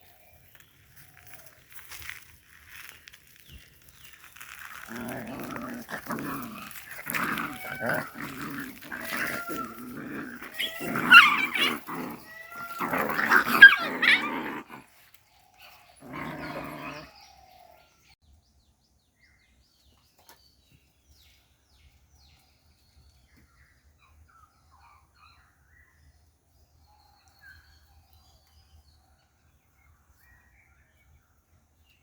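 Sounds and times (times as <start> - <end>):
dog growling and barking: 4.7 - 15.0, 15.6 - 17.2.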